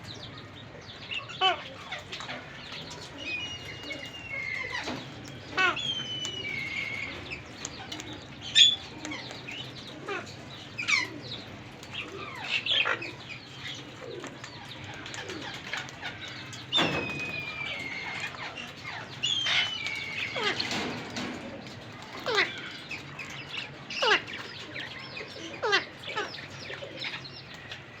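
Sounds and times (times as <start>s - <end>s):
parrots shrieking and whistling: 3.2s - 7.2s, 16.0s - 20.8s.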